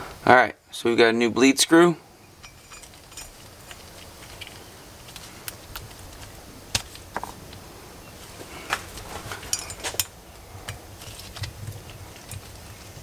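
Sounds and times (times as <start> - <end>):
metal parts and tools clicking: 2.3 - 6.4, 8.7 - 10.2.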